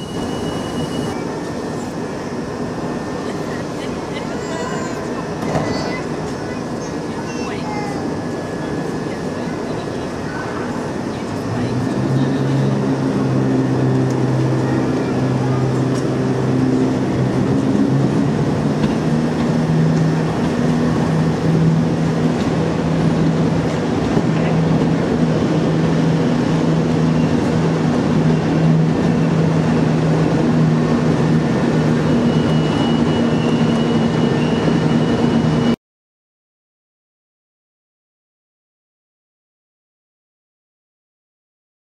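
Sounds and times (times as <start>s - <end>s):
train wheels rumbling: 4.4s - 35.7s.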